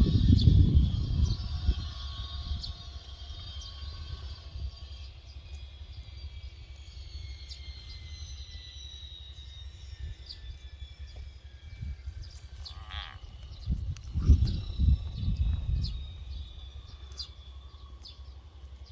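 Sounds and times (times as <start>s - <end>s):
wind rumble on microphone: 0.0s - 6.5s, 10.0s - 17.3s.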